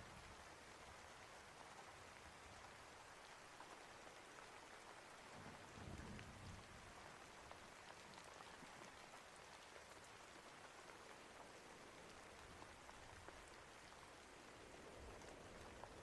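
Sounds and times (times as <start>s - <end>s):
quiet steady rainfall: 0.0s - 16.0s.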